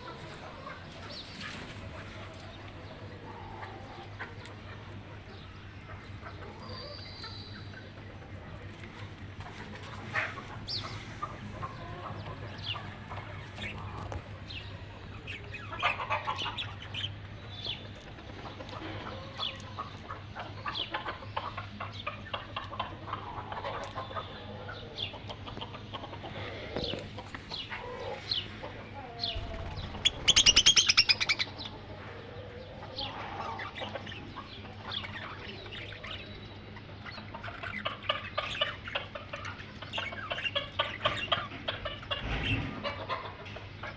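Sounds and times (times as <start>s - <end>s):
birds chirping: 0.0s - 43.9s.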